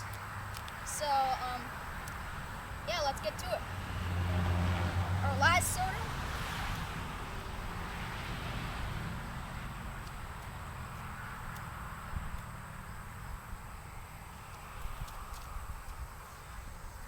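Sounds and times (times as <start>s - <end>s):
light ticks: 0.0s - 0.8s, 10.0s - 11.7s, 12.3s - 12.5s, 14.4s - 16.0s
wind rumbling on microphone: 0.0s - 17.0s.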